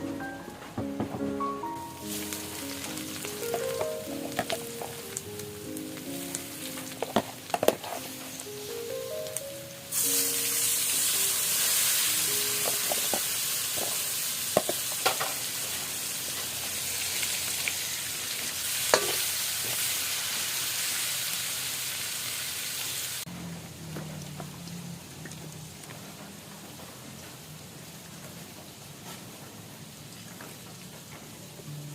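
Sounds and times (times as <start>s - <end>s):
food sizzling in hot oil: 1.8s - 26.0s
utensil knocking against pan: 7.0s - 8.0s.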